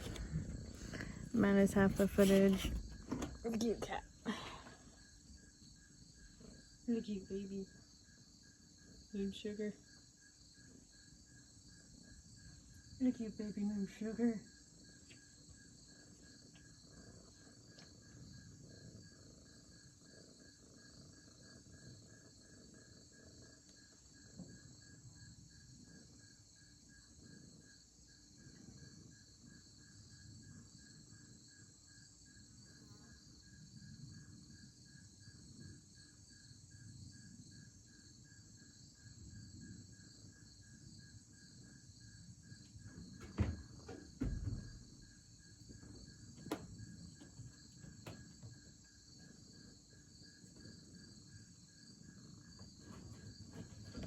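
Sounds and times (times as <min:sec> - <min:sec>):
crickets chirping: 0:00.0 - 0:54.0
loud thumps: 0:43.2 - 0:45.0.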